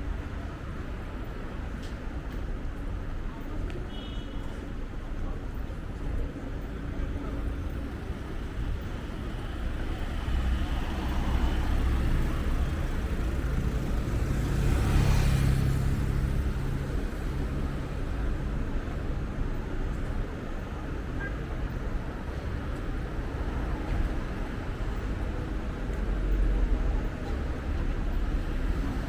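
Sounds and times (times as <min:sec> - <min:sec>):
traffic noise: 0:00.0 - 0:29.0
vehicle passing by: 0:07.6 - 0:18.1.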